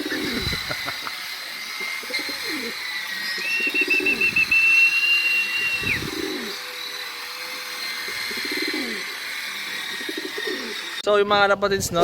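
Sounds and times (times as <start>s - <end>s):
low pigeon call: 0.0s - 0.9s, 1.8s - 6.7s, 8.0s - 11.0s
pigeons cooing: 0.0s - 6.7s, 8.0s - 11.0s
high thin tone: 0.0s - 11.1s.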